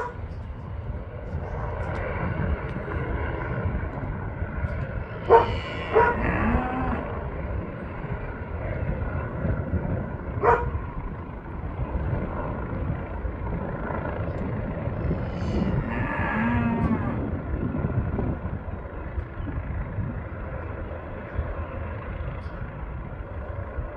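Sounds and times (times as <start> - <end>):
helicopter rotor and engine: 0.0 - 23.9
animal call: 5.3 - 7.0.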